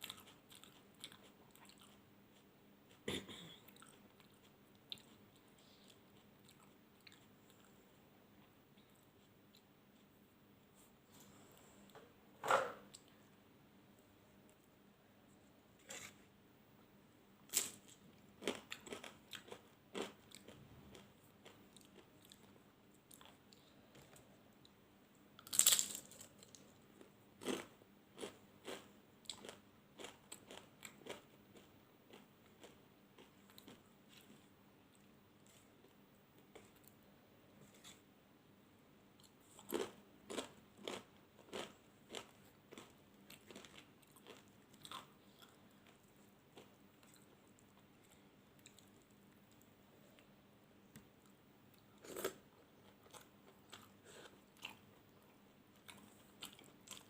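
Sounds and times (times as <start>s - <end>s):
crisp bites: 25.4s - 26.3s.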